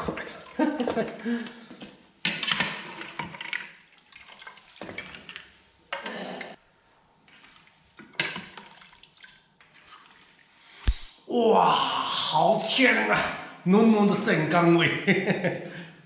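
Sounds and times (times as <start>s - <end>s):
cooking utensils clinking and scraping: 2.2s - 3.9s, 4.5s - 6.6s.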